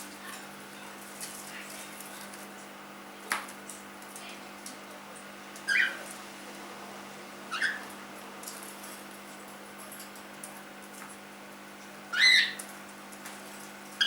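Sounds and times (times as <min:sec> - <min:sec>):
cockatiel chirps: 0:05.7 - 0:06.0, 0:07.5 - 0:07.9, 0:12.1 - 0:12.7.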